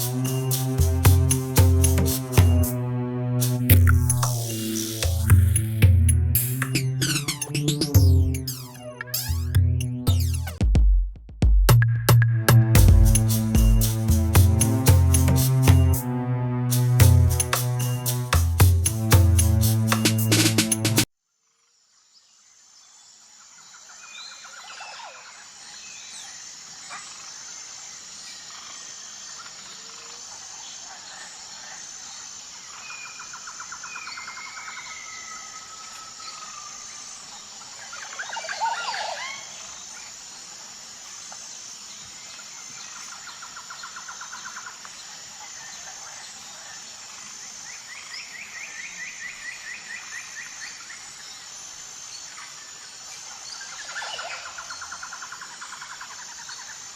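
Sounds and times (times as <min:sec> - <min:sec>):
high-pitched insect chorus: 0:00.0 - 0:02.3, 0:21.5 - 0:56.9
birds calling in trills: 0:32.9 - 0:39.9.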